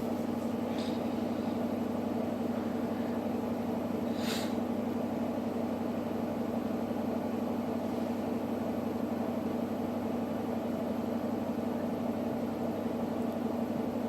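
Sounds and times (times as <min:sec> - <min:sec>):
washing machine spinning hum: 0:00.0 - 0:14.0.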